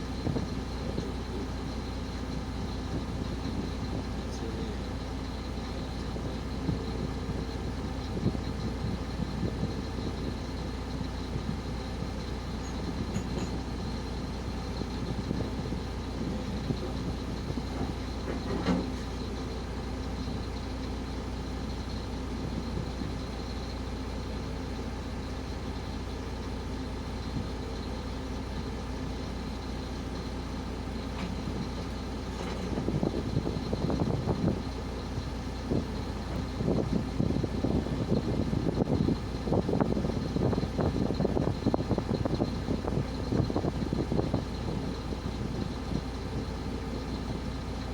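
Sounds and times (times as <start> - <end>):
truck engine running: 0.0 - 47.9
rattling and knocking: 13.0 - 13.8.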